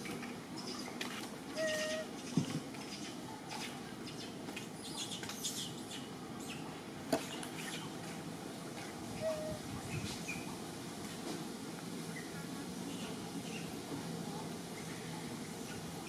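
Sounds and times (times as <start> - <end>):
steady background hiss: 0.0 - 16.0
small birds chirping: 1.6 - 8.0.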